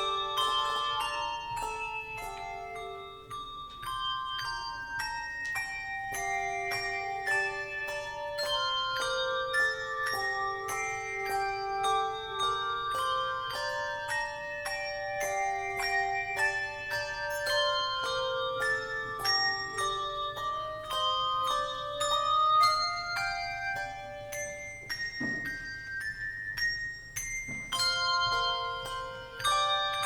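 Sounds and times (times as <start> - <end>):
tuned bells playing a melody: 0.0 - 30.0.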